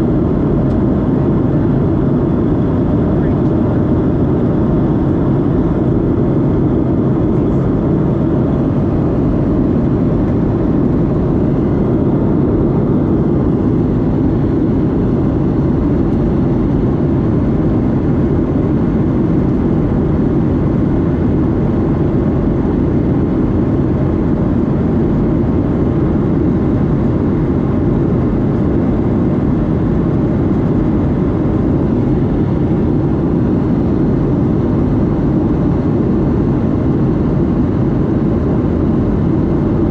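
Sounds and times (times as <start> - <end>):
airflow: 0.0 - 17.2
jet engine drone: 0.0 - 39.9.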